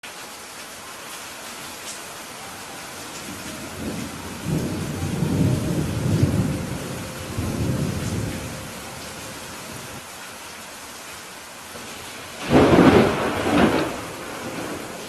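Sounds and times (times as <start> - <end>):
steady rain: 0.0 - 15.0
rolling thunder rumble: 3.2 - 10.0, 12.3 - 15.0.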